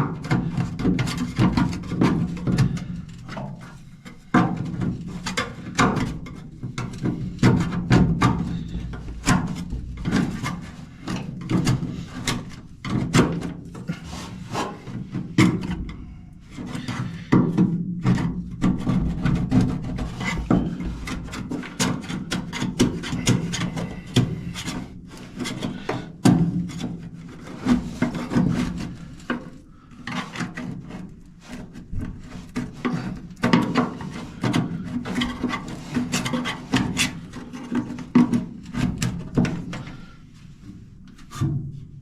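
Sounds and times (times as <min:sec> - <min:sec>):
hand scraper scraping metal seam: 0:30.0 - 0:38.0.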